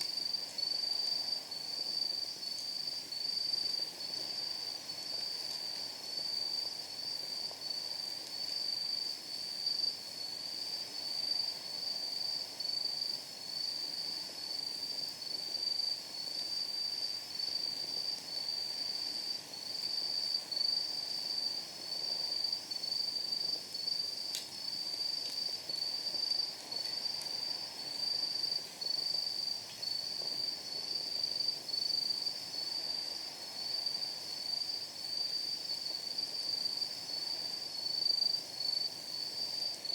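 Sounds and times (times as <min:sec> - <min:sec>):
night insects chirping: 0:00.0 - 0:39.9
wood fire hissing: 0:00.0 - 0:39.9
firewood popping: 0:24.3 - 0:25.8.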